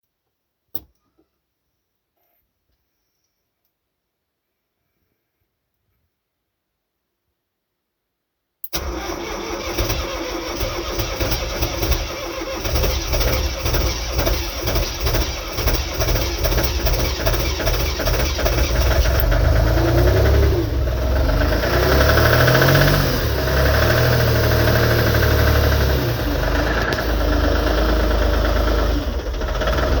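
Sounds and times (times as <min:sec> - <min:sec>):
diesel engine starting and running: 0:08.7 - 0:30.0.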